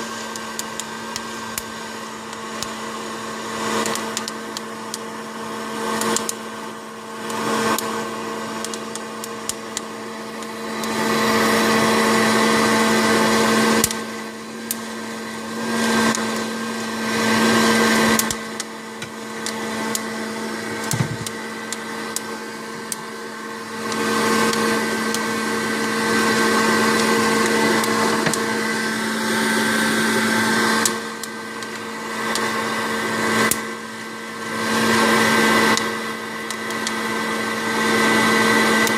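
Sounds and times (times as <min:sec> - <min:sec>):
fan motor whirring: 0:00.0 - 0:38.9
sharp clicks of coffee beans: 0:00.3 - 0:02.8, 0:03.8 - 0:05.0, 0:06.0 - 0:06.4, 0:07.3 - 0:07.9, 0:08.6 - 0:11.0, 0:13.8 - 0:14.0, 0:14.6 - 0:14.8, 0:18.0 - 0:20.1.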